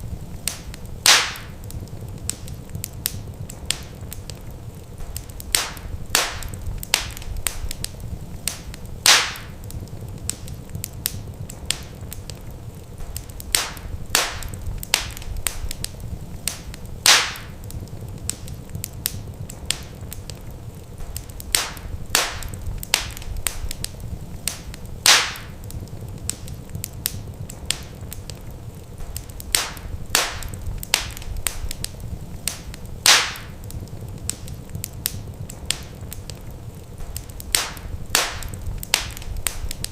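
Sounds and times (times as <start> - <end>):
wood fire crackling: 0.0 - 39.9
loud fire pop: 0.5 - 1.6, 5.0 - 7.9, 8.5 - 9.6, 13.0 - 15.9, 16.5 - 17.6, 21.0 - 23.9, 24.5 - 25.6, 29.0 - 31.9, 32.5 - 33.6, 37.0 - 39.9.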